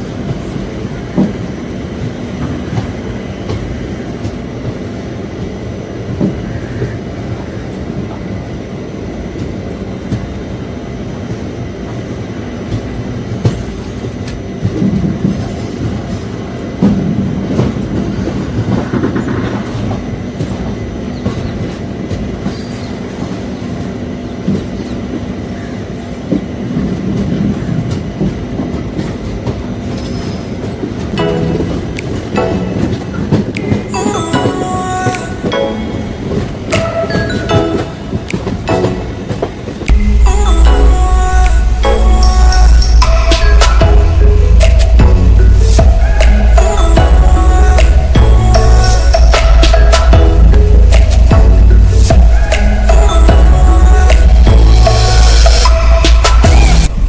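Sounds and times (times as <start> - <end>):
train rumbling on rails: 0.0 - 57.0
wheels clacking on rail joints: 0.0 - 57.0.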